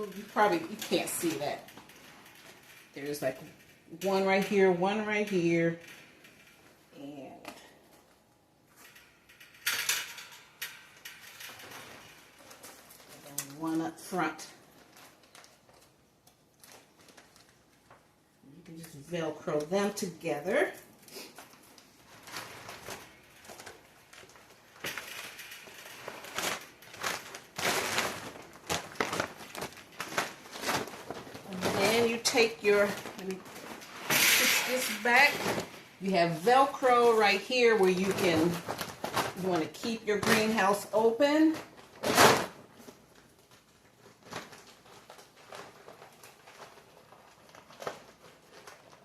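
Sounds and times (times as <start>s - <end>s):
plastic cover rustling and crinkling: 0.0s - 49.0s.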